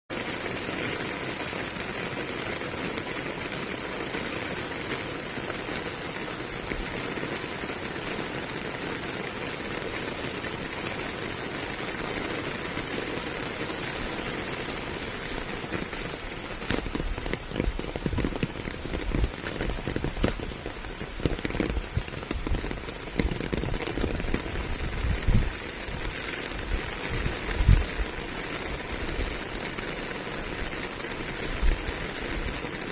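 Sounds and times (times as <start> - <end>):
steady rain: 0.1 - 32.9.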